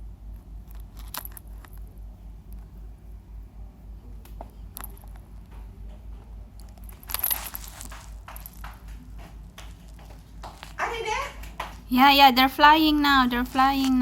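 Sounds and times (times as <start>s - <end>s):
steady low hum: 0.0s - 14.0s
handling clicks and rustle: 0.4s - 1.9s, 4.3s - 8.8s.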